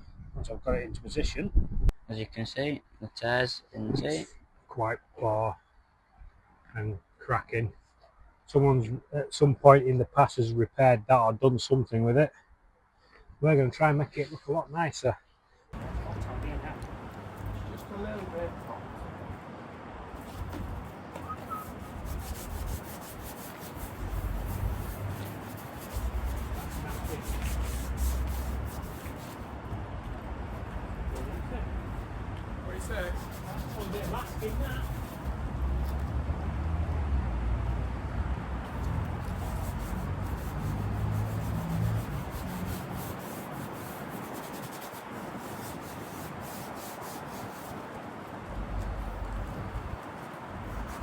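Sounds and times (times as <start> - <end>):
hand sanding strokes: 20.2 - 29.8, 32.7 - 36.0, 38.7 - 48.0, 49.0 - 51.0
rubbing on leather seat: 20.2 - 30.2, 32.7 - 36.0, 38.7 - 47.9, 48.7 - 51.0.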